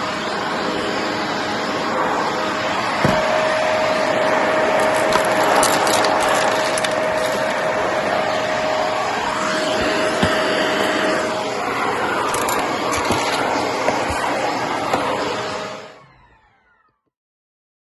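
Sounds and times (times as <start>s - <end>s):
vacuum cleaner whining: 0.0s - 17.1s
cardboard bits rattling in vacuum: 4.8s - 7.8s, 11.9s - 14.4s.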